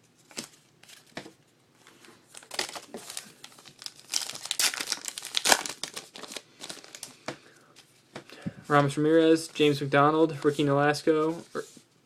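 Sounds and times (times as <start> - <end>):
plastic wrapper crinkling and tearing: 2.3 - 7.2.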